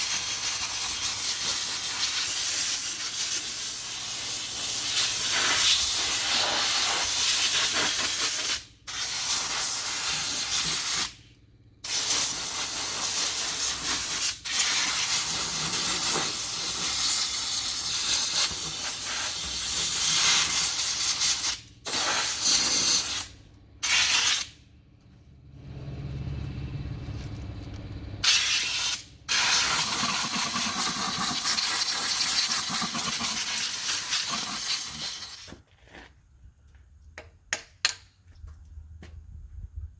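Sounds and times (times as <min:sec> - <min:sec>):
pressurised air hissing: 0:11.8 - 0:24.6
low hum: 0:24.7 - 0:28.2.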